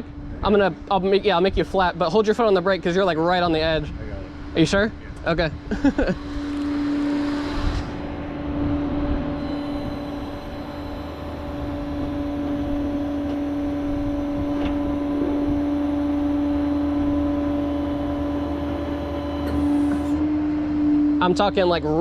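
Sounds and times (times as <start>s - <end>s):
hydraulic pump whining: 6.2s - 20.5s
truck engine rumble: 7.9s - 20.3s.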